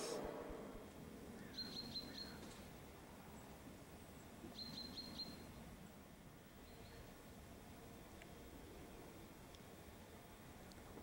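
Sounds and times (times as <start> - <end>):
songbird calling: 0.0 - 2.7, 3.3 - 5.5, 6.6 - 7.1
faint outdoor background: 0.0 - 11.0.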